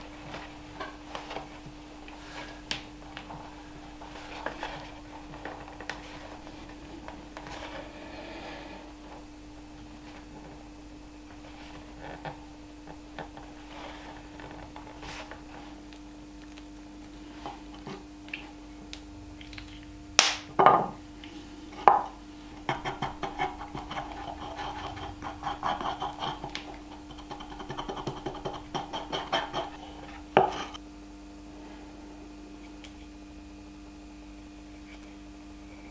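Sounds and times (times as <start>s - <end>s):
low hum: 0.0s - 28.8s.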